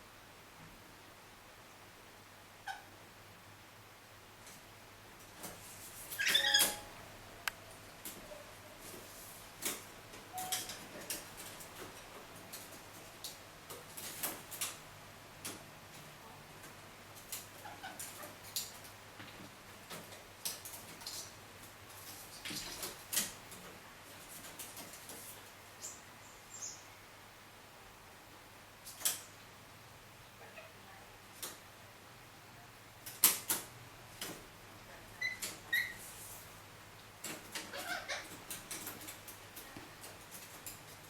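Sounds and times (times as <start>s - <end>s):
parakeets scratching on metal casing: 37.2s - 39.4s.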